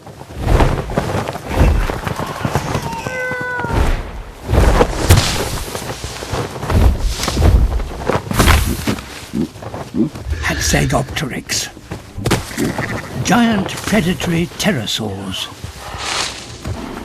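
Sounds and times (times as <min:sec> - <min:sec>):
heavy thumps and rushing: 0:00.3 - 0:03.1, 0:03.7 - 0:10.4, 0:11.8 - 0:14.2
falling animal cry: 0:02.1 - 0:03.9, 0:12.4 - 0:13.2.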